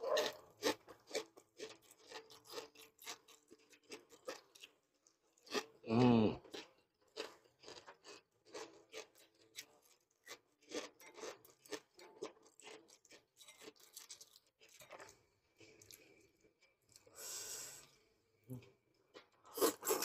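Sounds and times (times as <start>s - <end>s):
soft chewing: 0.0s - 20.0s.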